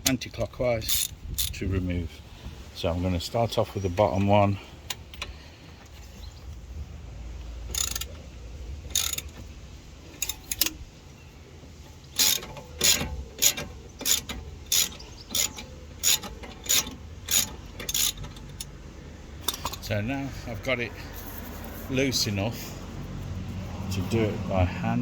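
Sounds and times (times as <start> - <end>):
socket ratchet clicking: 7.7 - 8.2, 8.9 - 9.4, 12.2 - 18.8.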